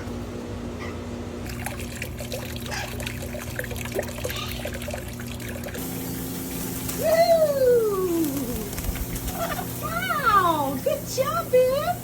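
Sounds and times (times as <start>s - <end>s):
steady low hum: 0.0s - 12.0s
water trickling in fountain: 1.4s - 5.8s
mister spray hiss: 5.8s - 12.0s.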